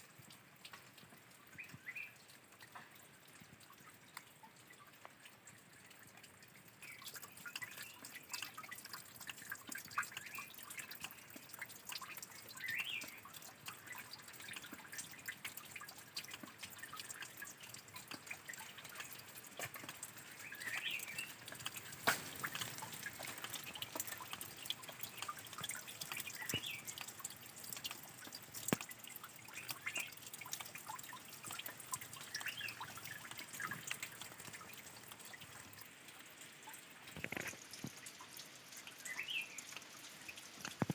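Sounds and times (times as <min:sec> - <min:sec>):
water dripping and trickling: 0:00.0 - 0:40.9.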